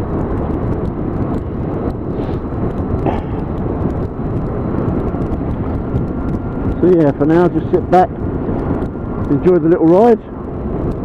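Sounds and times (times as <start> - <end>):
motorcycle engine running: 0.0 - 11.0
wind noise: 0.0 - 11.0.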